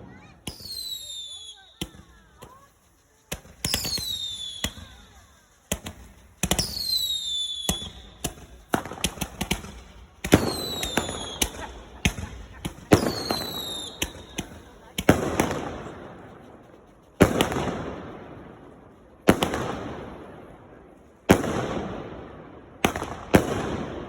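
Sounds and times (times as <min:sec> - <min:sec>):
fireworks bangs: 0:00.0 - 0:24.0
fireworks crackling: 0:00.0 - 0:24.0
falling firework whistle: 0:00.1 - 0:09.4, 0:10.2 - 0:14.7.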